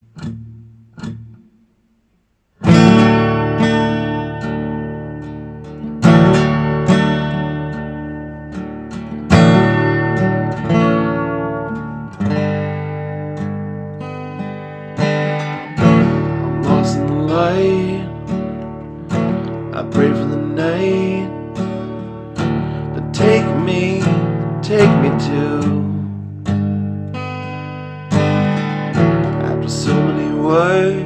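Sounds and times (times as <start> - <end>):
guitar plucks: 0.0 - 2.0, 2.6 - 31.0
acoustic guitar strumming chords: 0.0 - 31.0.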